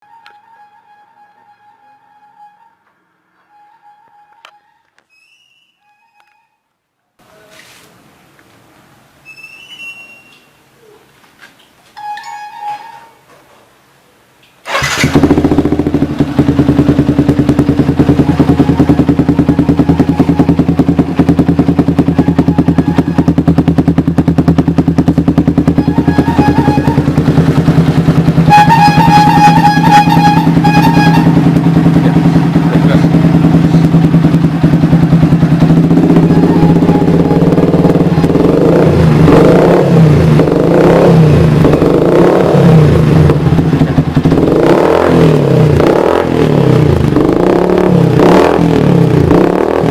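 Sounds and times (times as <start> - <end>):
motorcycle engine idling and revving: 14.6 - 49.9.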